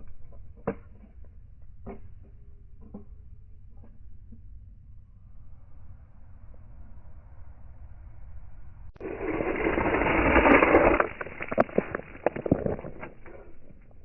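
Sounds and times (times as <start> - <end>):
toy cars rolling rush: 9.0 - 13.8.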